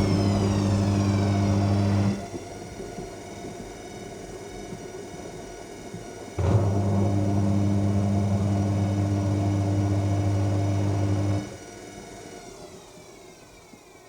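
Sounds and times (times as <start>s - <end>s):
washing machine drain pump buzzing: 0.0s - 3.6s, 6.3s - 12.9s
washing machine drum motor whine: 0.0s - 14.0s.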